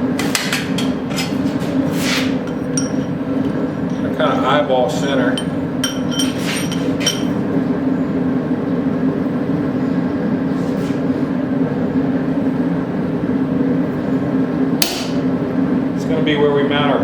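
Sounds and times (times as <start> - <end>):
hammer tapping metal punch: 2.5 - 3.1, 14.8 - 15.2.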